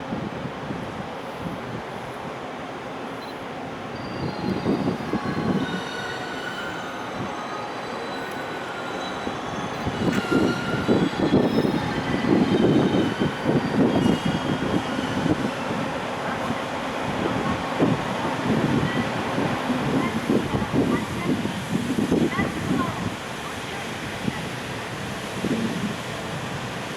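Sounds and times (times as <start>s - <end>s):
train wheels rumbling on rails: 3.5s - 26.9s
thin high wheel squeals: 3.9s - 16.8s.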